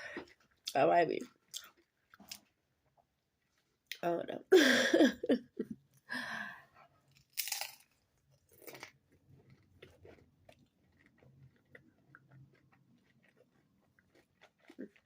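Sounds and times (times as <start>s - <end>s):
person chewing: 1.4s - 4.0s, 7.1s - 15.0s.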